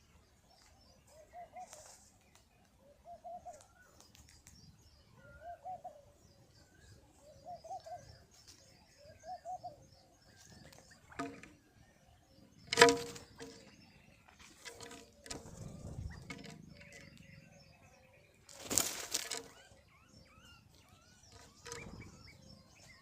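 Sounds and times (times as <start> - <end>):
pigeons cooing: 0.9 - 4.0, 5.2 - 8.4, 9.0 - 11.6, 12.2 - 23.0
wings flapping: 18.5 - 19.7.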